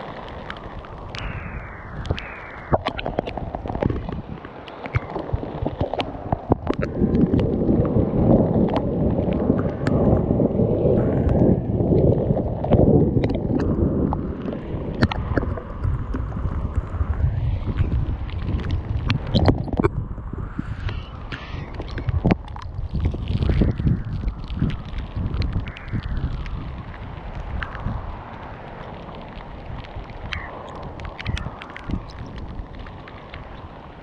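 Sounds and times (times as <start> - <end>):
wind buffeting microphone: 0.0 - 34.0
hailstones ticking: 20.8 - 34.0.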